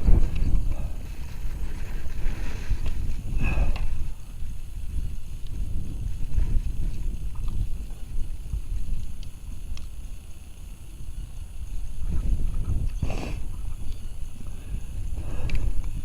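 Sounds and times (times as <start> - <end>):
wind buffeting microphone: 0.0 - 16.0
faint small clicks: 9.0 - 9.9, 15.4 - 16.0.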